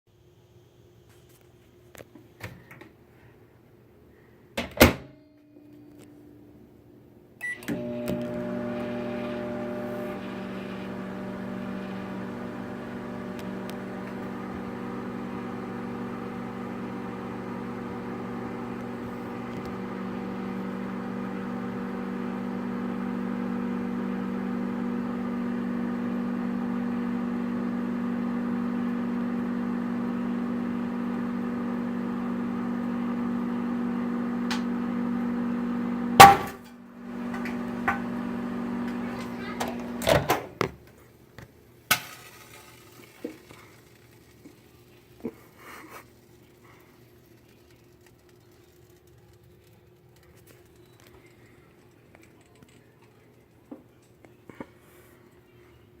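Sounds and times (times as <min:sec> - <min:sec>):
microwave oven humming: 0:07.4 - 0:40.7.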